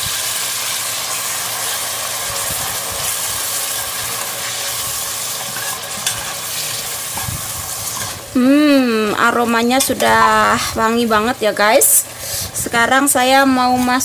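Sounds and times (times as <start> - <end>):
spice paste sizzling in hot oil: 0.0 - 14.0
metal ladle stirring: 3.2 - 8.2.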